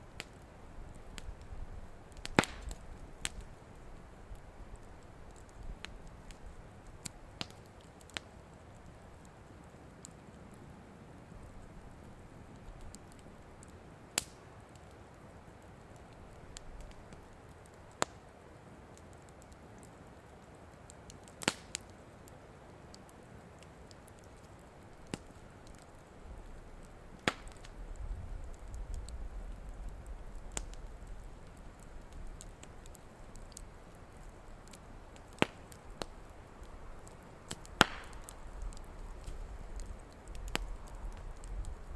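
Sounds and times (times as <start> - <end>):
campfire hissing and popping: 0.0 - 41.9.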